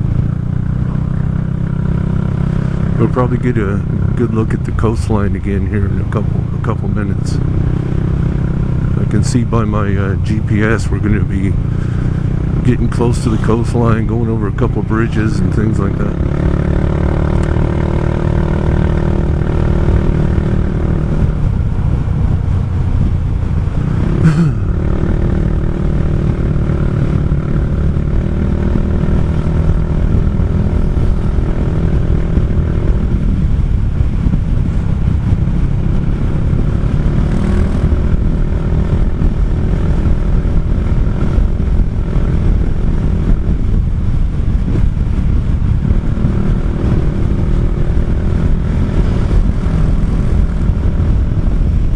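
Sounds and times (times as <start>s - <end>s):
scooter engine running: 0.0s - 51.9s.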